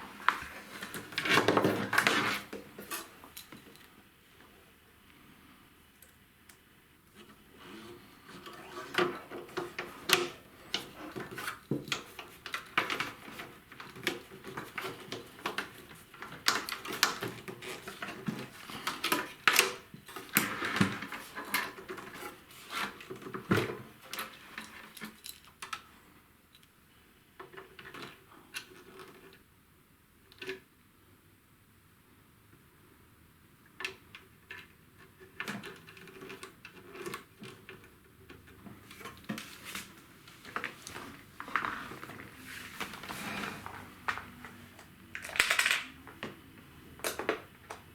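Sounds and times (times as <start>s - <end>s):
metal and plastic parts clattering: 38.5s - 46.3s.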